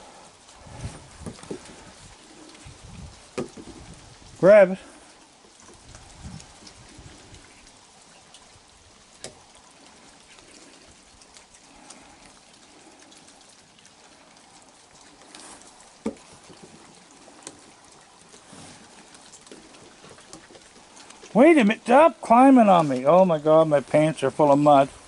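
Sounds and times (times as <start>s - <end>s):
rain falling: 0.0s - 25.0s.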